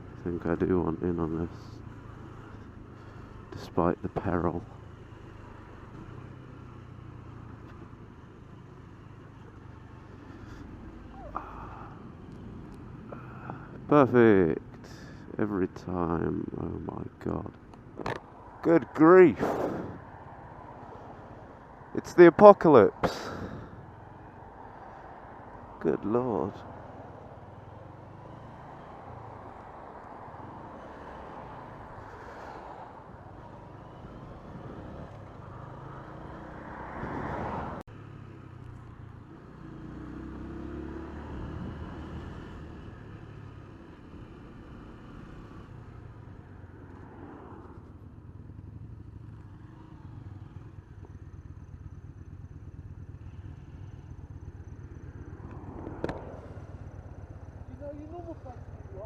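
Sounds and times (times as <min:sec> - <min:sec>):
motorcycle engine running: 0:47.6 - 0:59.0.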